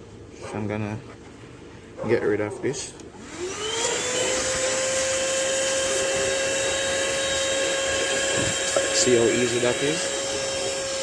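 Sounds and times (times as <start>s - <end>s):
handheld vacuum motor whine: 3.2s - 11.0s.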